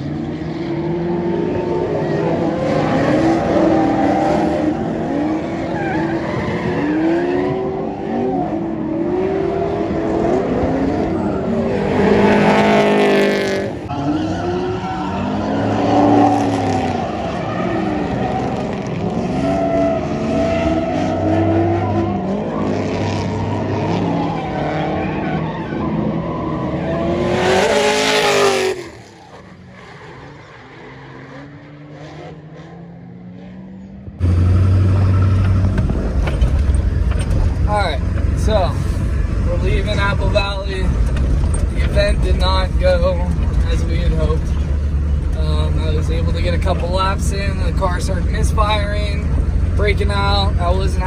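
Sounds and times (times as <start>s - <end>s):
car engine revving: 0.0s - 33.6s, 34.2s - 51.0s
tyre squeal: 2.8s - 7.4s.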